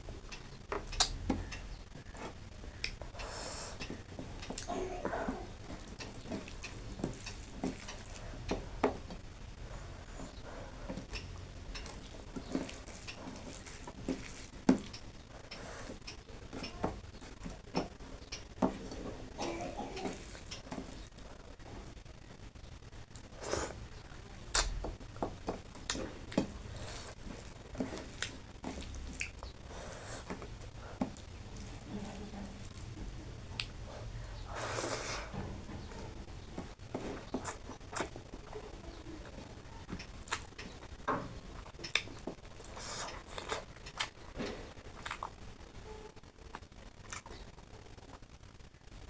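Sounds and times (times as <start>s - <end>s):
person chewing food: 0.2s - 21.9s, 23.0s - 48.3s
mouth clicks and smacks: 0.3s - 4.8s, 24.4s - 30.5s, 33.5s - 33.8s
wet chewing and lip smacking: 0.3s - 8.7s, 25.6s - 30.5s, 33.5s - 33.8s, 37.1s - 45.5s, 46.5s - 47.5s
wet mouth noises: 24.4s - 24.8s.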